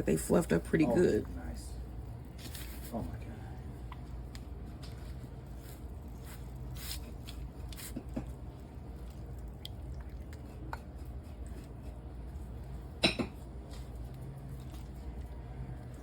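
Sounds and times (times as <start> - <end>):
low kitchen hum: 0.0 - 16.0
pastry brush dabbing: 2.2 - 9.6.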